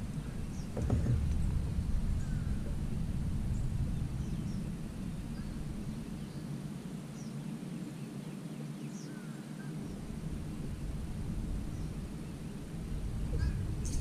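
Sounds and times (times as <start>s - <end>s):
low rumble: 0.0s - 6.9s, 9.8s - 14.0s
faint bird chirps: 3.5s - 10.0s, 11.6s - 14.0s.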